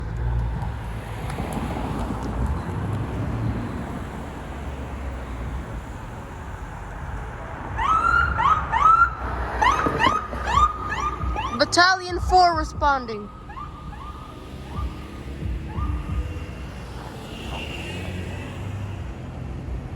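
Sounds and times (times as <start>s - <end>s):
low street rumble: 0.0s - 19.9s
electronic siren yelping: 7.8s - 12.2s, 13.3s - 16.5s.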